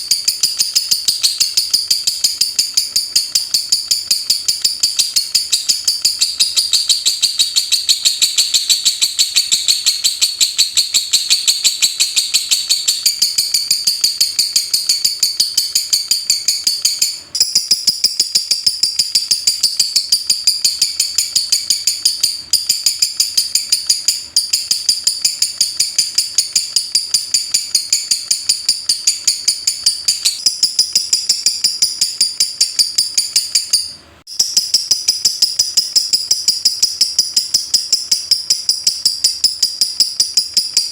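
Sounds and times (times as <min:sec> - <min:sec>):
lovebird singing rapid chirps: 0:00.0 - 0:40.9.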